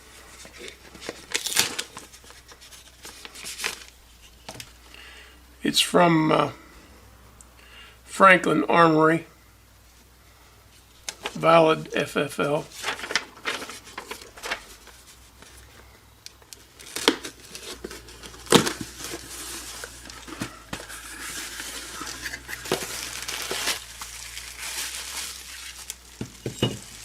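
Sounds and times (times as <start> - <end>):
packaging crinkling and rustling: 0.1 - 4.7, 12.4 - 27.0.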